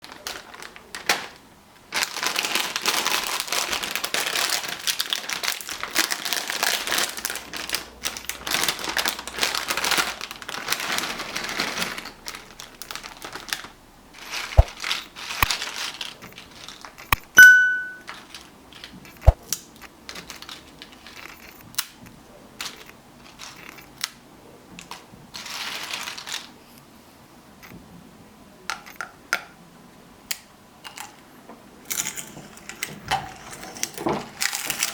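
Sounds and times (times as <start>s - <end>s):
potato chip packaging crinkling: 0.0s - 22.0s, 24.8s - 26.6s, 33.4s - 34.9s
loud high beep: 17.4s - 18.0s.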